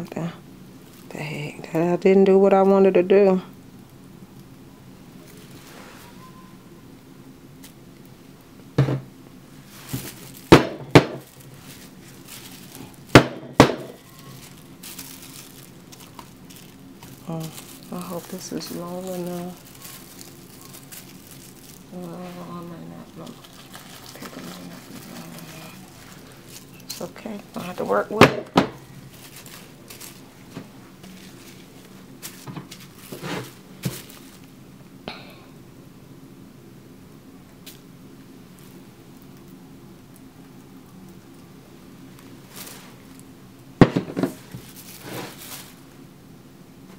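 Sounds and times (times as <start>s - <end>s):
faint room hum: 0.0s - 46.9s
knocks on hard surface: 8.8s - 9.1s, 10.5s - 11.2s, 13.2s - 13.9s
short rustles: 44.3s - 45.8s.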